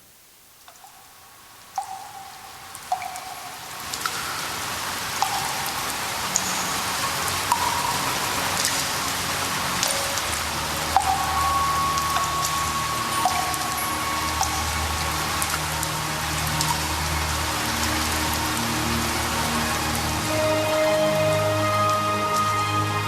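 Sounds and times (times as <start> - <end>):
rain pattering: 0.0 - 23.0
water drops plinking: 0.6 - 18.2.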